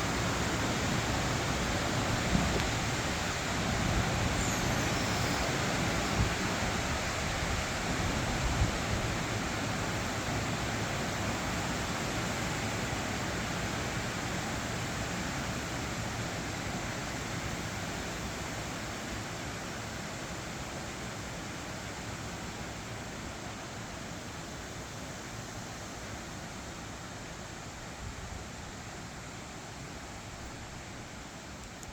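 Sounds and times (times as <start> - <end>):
wind buffeting microphone: 1.8 - 4.4.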